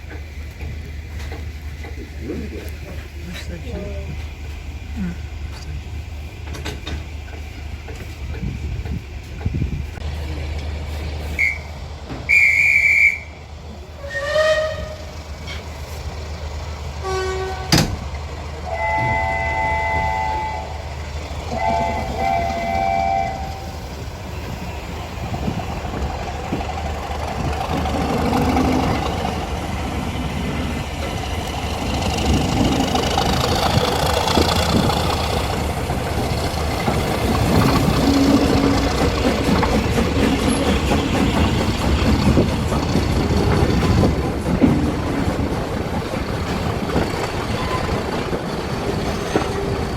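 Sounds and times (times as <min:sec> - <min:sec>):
train wheels on rails: 0:00.0 - 0:49.9
train whistle blowing: 0:11.4 - 0:11.7, 0:12.3 - 0:13.4, 0:14.0 - 0:15.1, 0:17.0 - 0:17.8, 0:18.7 - 0:20.9, 0:21.5 - 0:23.8, 0:38.0 - 0:38.9.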